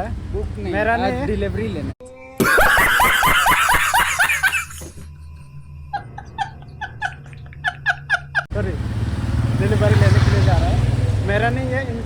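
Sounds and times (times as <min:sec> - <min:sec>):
burst of high laughter: 0:02.4 - 0:05.1.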